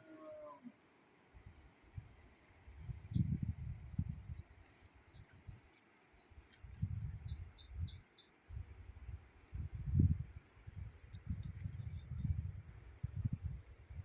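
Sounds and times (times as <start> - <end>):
low gusty rumbles: 8.6 - 14.0.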